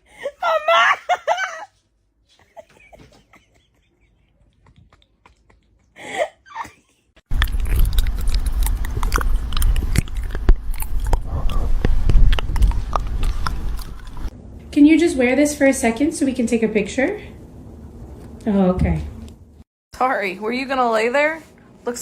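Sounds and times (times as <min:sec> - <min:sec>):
chewing and crunching: 0:07.3 - 0:14.3.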